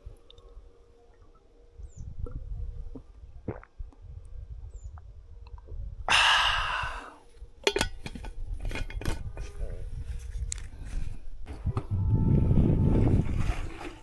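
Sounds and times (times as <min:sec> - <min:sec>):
low rumble of bike riding: 0:08.3 - 0:14.0.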